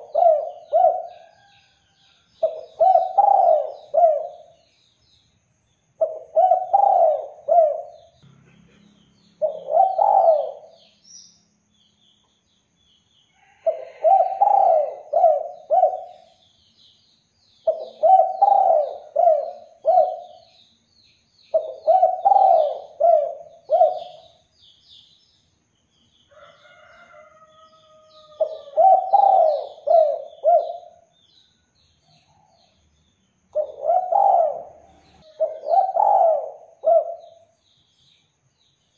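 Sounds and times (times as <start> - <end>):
dove cooing: 0.0 - 1.5, 2.4 - 4.6, 6.0 - 8.1, 9.4 - 10.8, 13.6 - 16.4, 17.6 - 20.4, 21.5 - 24.4, 28.2 - 31.1, 33.6 - 37.5
small birds chirping faintly: 0.0 - 38.9.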